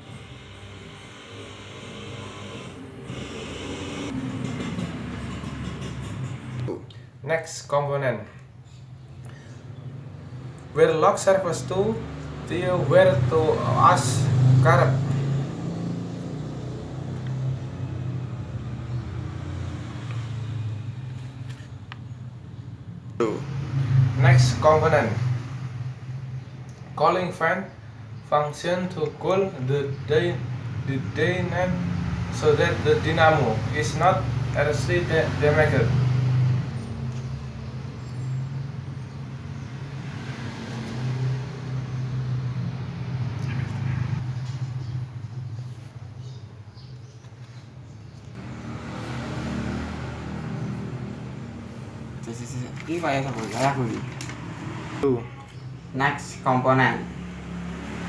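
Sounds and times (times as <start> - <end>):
motor humming: 0.0 - 4.5.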